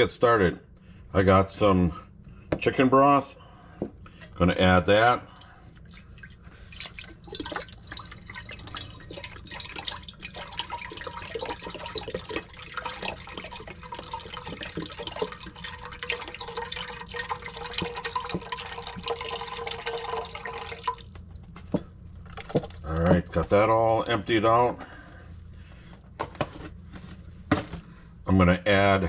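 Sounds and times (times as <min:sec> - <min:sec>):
broth pouring into a pot: 0:05.3 - 0:21.5.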